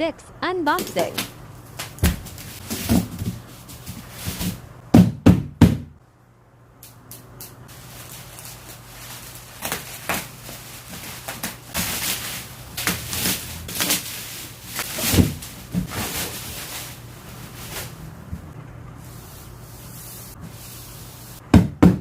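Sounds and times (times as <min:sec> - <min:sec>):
rustles scrapes and knocks: 0:01.8 - 0:04.6, 0:07.8 - 0:18.6.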